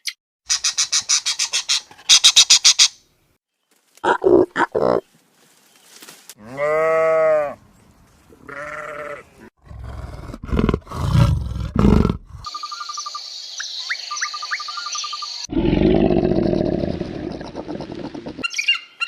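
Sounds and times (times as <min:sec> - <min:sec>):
animal calls: 0:15.5 - 0:18.8.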